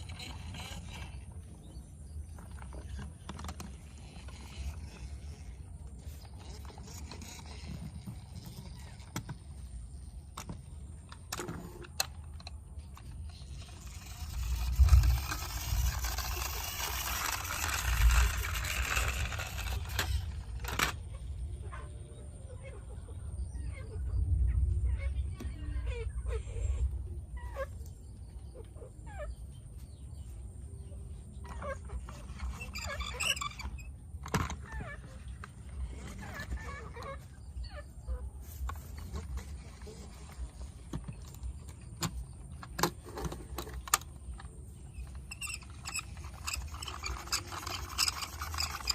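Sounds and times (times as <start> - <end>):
toy trucks clicking and tapping: 0.0 - 1.4, 2.4 - 21.4, 38.6 - 48.9.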